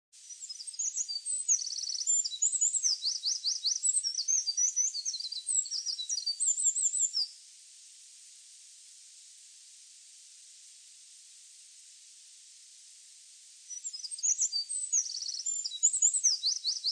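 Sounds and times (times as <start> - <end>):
songbird singing: 0.2 - 7.4, 13.7 - 16.9
recording hiss: 0.2 - 16.9.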